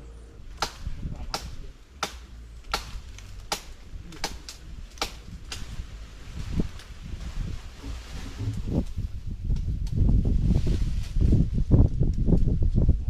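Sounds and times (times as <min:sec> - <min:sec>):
knife chopping tree branch: 0:00.6 - 0:05.7.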